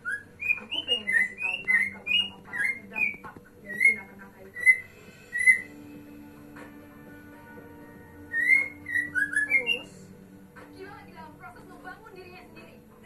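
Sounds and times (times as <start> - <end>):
bird whistling song: 0.0 - 5.9, 8.2 - 10.0.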